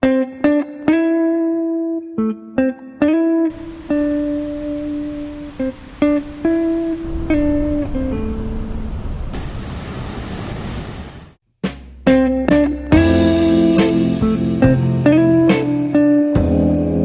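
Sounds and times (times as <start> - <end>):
plucked guitar melody: 0.0 - 8.8, 12.0 - 17.0
steady hiss: 3.5 - 11.1.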